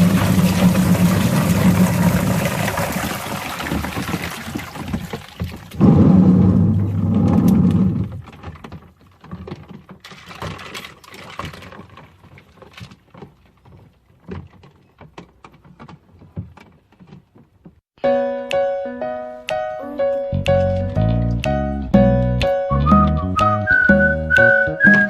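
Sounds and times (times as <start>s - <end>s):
washing machine motor hum: 0.0s - 8.9s
plastic toys clicking in drum: 8.2s - 17.6s.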